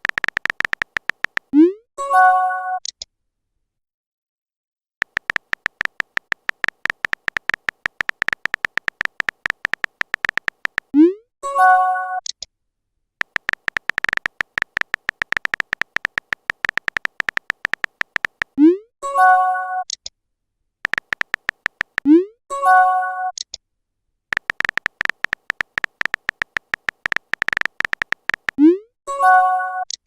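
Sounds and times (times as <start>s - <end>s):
smartphone keyboard tapping: 0.0s - 1.5s, 5.0s - 10.9s, 13.2s - 18.6s, 20.8s - 22.1s, 24.3s - 28.6s.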